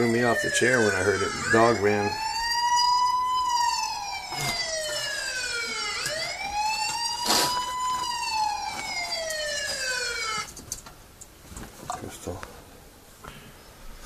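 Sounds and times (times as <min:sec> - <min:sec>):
emergency vehicle siren wailing: 0:00.0 - 0:10.6.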